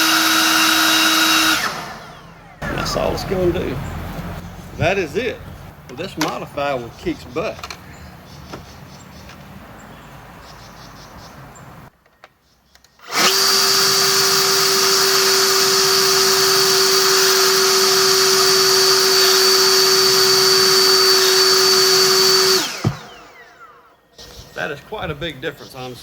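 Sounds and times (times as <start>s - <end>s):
leaf blower running: 0.0s - 5.3s, 13.0s - 23.9s.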